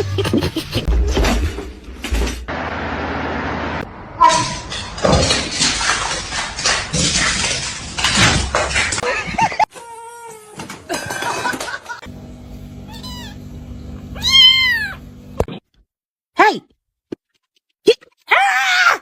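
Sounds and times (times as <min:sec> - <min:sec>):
steady low hum: 0:12.0 - 0:15.4
cat meowing: 0:12.9 - 0:13.4, 0:14.1 - 0:15.0.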